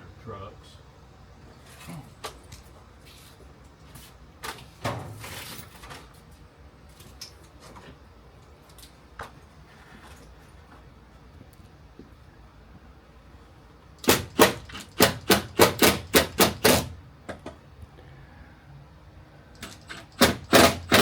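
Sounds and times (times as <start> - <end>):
scraping rustle: 3.0 - 6.3.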